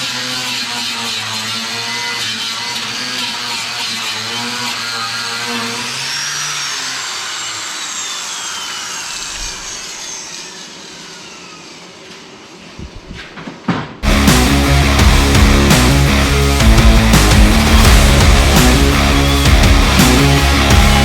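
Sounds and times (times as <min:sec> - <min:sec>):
power tool winding down: 0:00.0 - 0:12.8, 0:14.0 - 0:21.0
knocks: 0:13.2 - 0:14.0.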